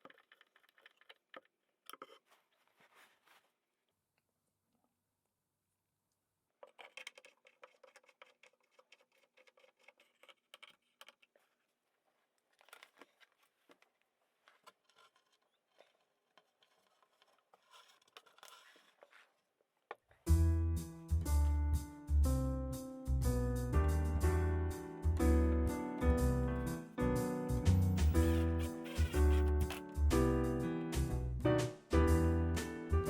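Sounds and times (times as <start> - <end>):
scratching and tapping handling noises: 0.0 - 3.6, 6.6 - 20.3, 27.7 - 30.3
piano music: 20.3 - 33.0.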